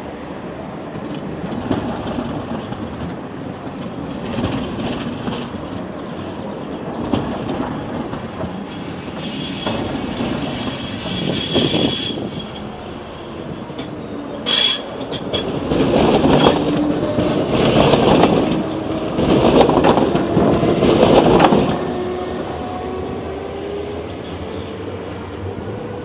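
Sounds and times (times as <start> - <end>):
tram rolling over rails: 0.0 - 26.0
high wheel squeal: 5.6 - 15.6, 20.0 - 23.2.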